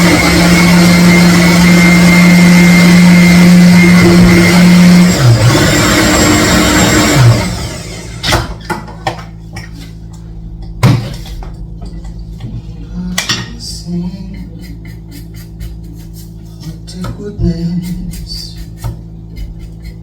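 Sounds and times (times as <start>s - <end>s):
loud motor-like noise: 0.0s - 8.6s.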